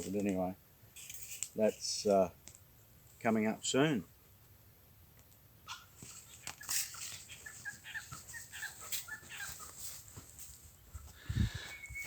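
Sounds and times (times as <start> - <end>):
high-pitched animal calls: 5.6 - 10.0.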